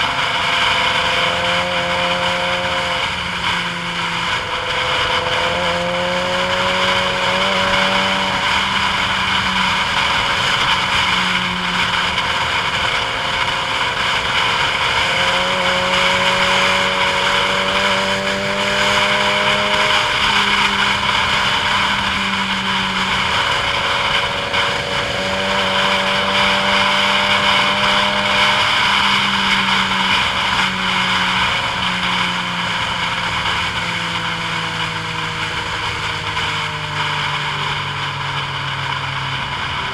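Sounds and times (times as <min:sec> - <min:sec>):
vehicle engine hum: 0:00.0 - 0:39.9
wind and road noise hiss: 0:00.0 - 0:39.9.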